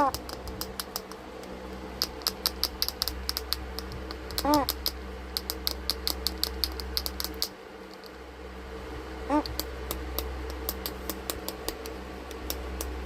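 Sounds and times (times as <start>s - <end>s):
parrot clicking: 0.0s - 8.2s, 9.4s - 13.0s
parrot chirp: 4.3s - 7.4s, 9.3s - 9.6s.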